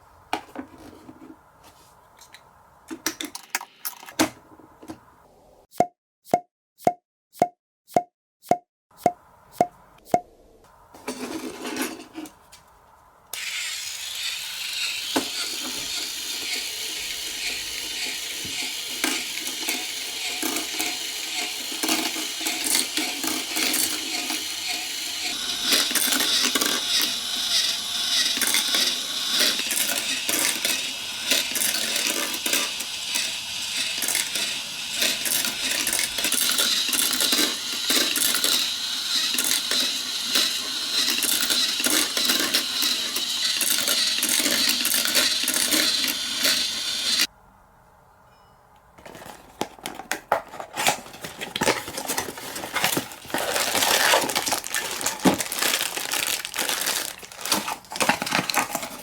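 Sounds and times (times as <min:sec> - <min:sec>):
marbles rattling down a marble run: 0:14.0 - 0:47.3, 0:53.4 - 0:58.8.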